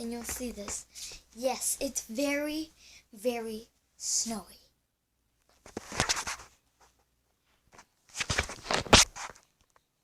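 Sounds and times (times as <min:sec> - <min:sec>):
rustling: 0:05.4 - 0:09.8.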